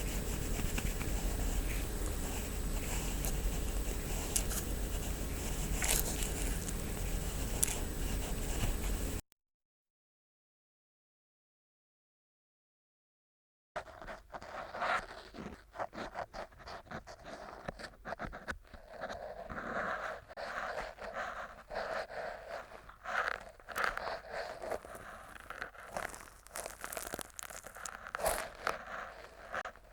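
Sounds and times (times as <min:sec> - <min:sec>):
earpick scraping in ear: 0:00.0 - 0:09.2, 0:18.7 - 0:29.9.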